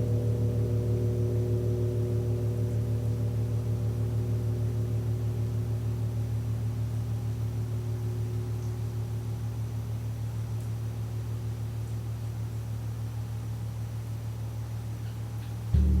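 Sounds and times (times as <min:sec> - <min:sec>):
large gong ringing: 0:15.8 - 0:16.0.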